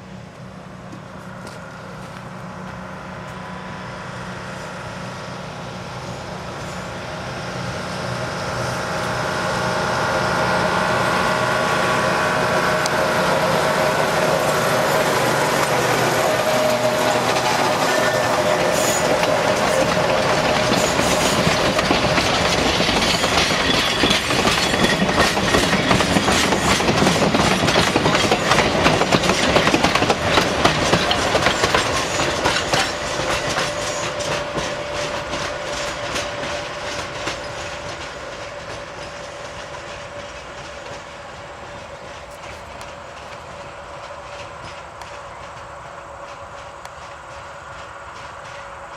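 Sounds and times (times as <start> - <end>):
diesel train rolling on rails: 0.0 - 48.9
wheels clicking over rail joints: 12.4 - 48.9.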